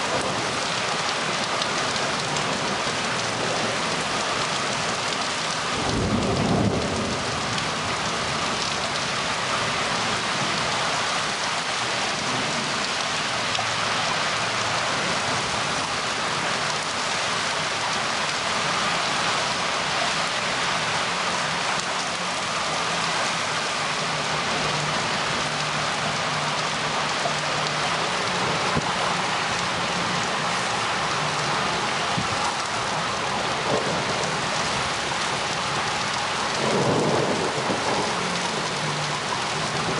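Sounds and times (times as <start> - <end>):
steady rain pouring: 0.0 - 39.9
thunder rumble: 5.6 - 9.0, 32.1 - 39.9.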